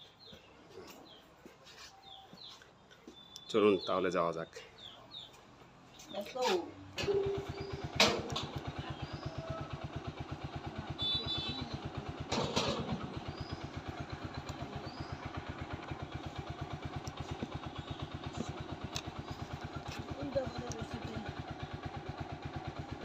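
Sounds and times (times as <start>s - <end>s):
motorcycle engine idling: 6.8s - 23.0s.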